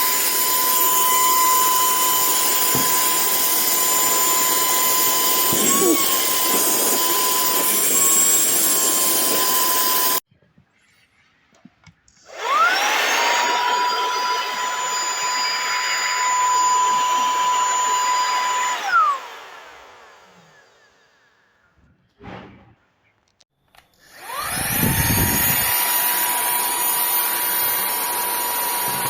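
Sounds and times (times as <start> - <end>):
handheld vacuum whining: 0.0 - 10.2, 12.2 - 21.1, 24.0 - 29.0.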